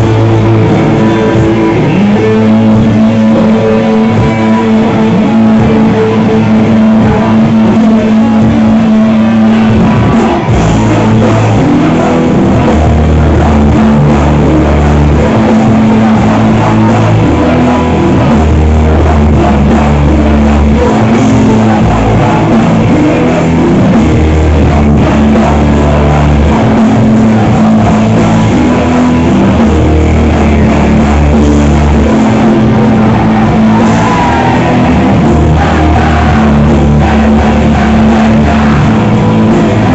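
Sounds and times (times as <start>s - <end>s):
long bass notes: 0.0s - 39.9s
rock band playing: 0.0s - 39.9s.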